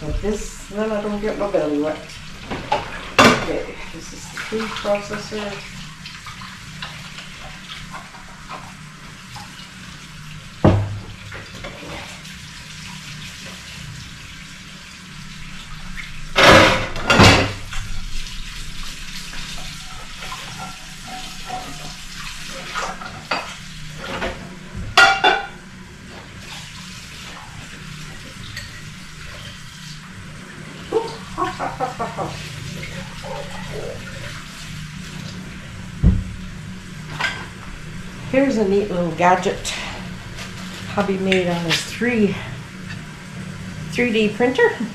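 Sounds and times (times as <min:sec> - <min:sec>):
tap water running into sink: 0:00.0 - 0:44.9
dishware clattering: 0:02.4 - 0:04.1, 0:16.4 - 0:17.8, 0:19.6 - 0:25.6.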